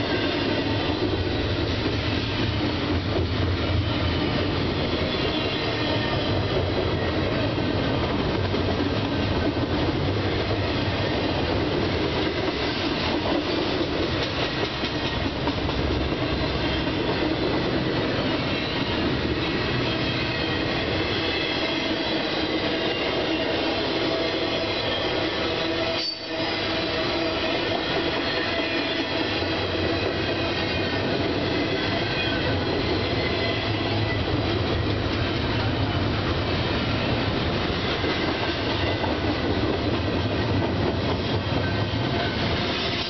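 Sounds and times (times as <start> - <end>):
train wheels rolling on rails: 0.0 - 43.0
high wheel squeals: 19.8 - 29.0.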